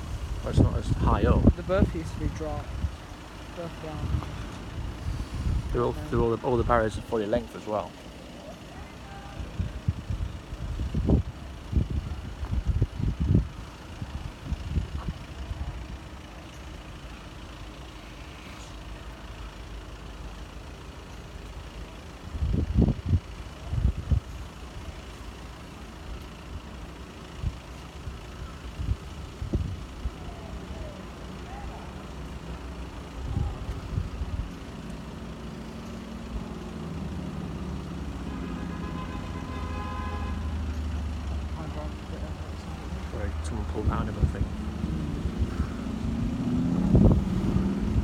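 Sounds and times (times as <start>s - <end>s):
low rumble of road traffic: 0.0s - 48.0s
vehicle engine idling: 0.0s - 48.0s
wind buffeting microphone: 4.0s - 6.8s, 9.5s - 15.9s, 22.4s - 24.3s, 28.7s - 30.2s, 43.8s - 48.0s.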